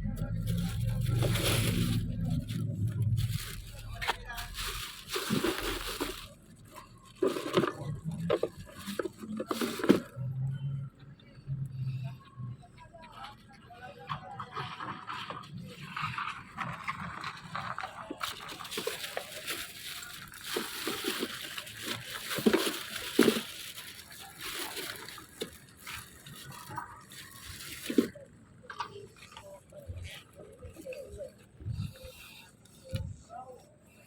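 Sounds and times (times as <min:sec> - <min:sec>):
water splashing and sloshing: 0:04.4 - 0:06.4.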